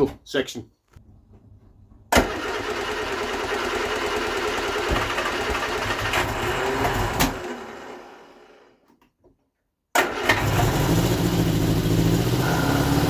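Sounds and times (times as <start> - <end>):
exhaust blow chuffing: 10.3 - 13.0
car engine running: 10.4 - 13.0.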